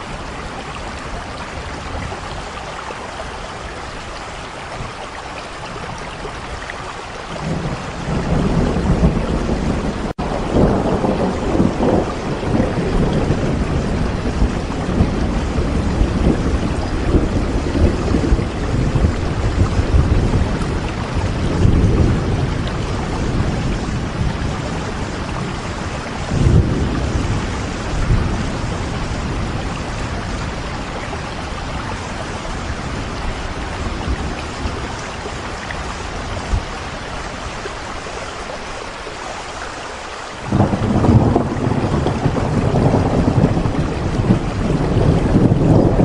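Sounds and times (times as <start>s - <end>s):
steady rain: 0.0s - 46.0s
rolling thunder: 7.3s - 37.2s, 40.5s - 46.0s.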